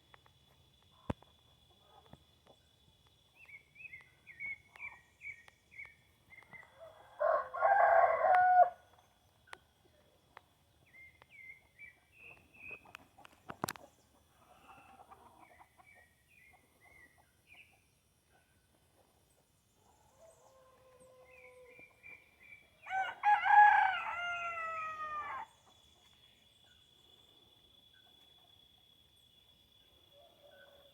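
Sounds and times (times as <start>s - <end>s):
songbird chirping: 0.0s - 30.9s
rooster crowing: 6.8s - 8.8s, 22.8s - 25.5s.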